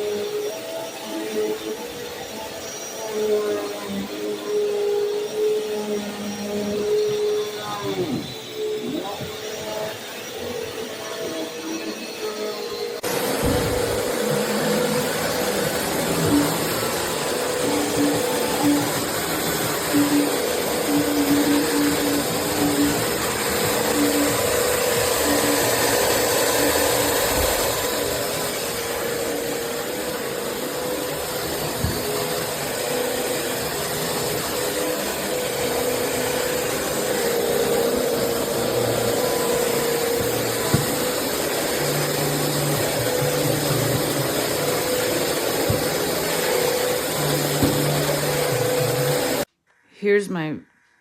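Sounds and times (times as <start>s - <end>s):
vacuum cleaner running: 0.0s - 49.5s.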